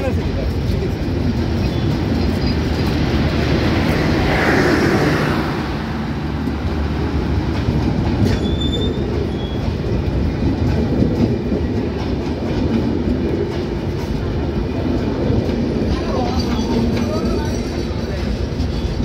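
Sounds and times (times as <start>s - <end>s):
rail-joint clacks: 0.0s - 19.0s
wheels rumbling on rails: 0.0s - 19.0s
high wheel squeal: 8.2s - 9.8s.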